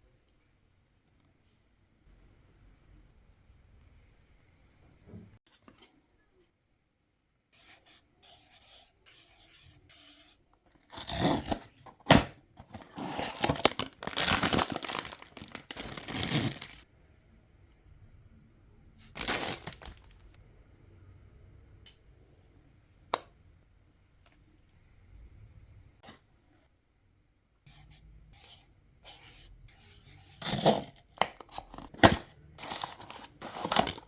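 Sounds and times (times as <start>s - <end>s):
packaging rustling: 12.6s - 16.8s, 19.2s - 20.4s, 32.1s - 34.0s
packaging tearing: 12.7s - 16.8s, 19.2s - 20.3s, 32.6s - 34.0s.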